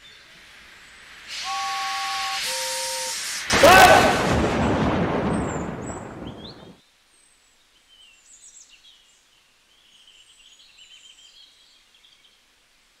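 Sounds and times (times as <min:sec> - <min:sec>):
loud crash: 0:03.5 - 0:06.8
small birds chirping: 0:05.1 - 0:12.4.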